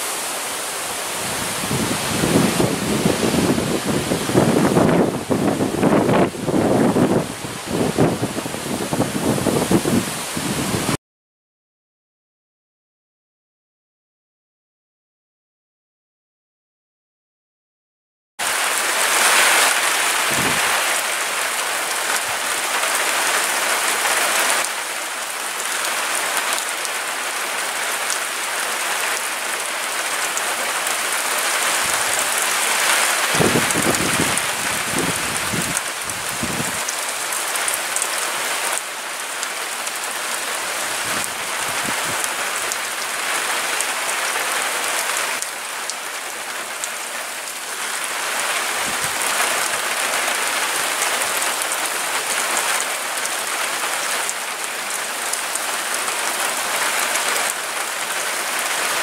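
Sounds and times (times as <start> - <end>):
storm wind rushing: 1.0 - 11.0, 19.2 - 20.9, 31.7 - 36.9
gusts buffeting microphone: 1.1 - 11.0, 20.1 - 20.9, 31.8 - 36.8, 41.0 - 42.2.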